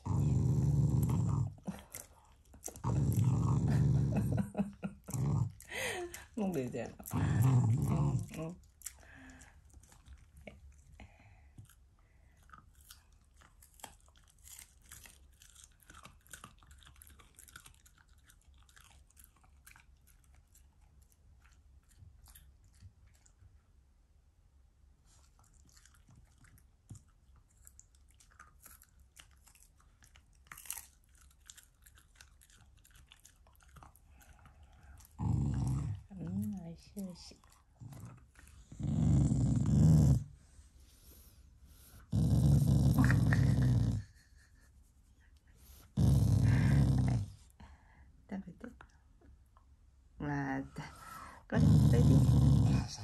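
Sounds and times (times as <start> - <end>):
chewing and crunching food: 0.8 - 23.6, 25.1 - 39.5.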